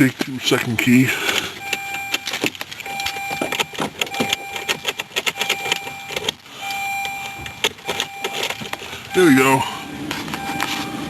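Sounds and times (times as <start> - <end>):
car warning chime beeping: 0.5 - 11.0
keys clicking and rattling: 1.3 - 6.4, 7.0 - 8.9.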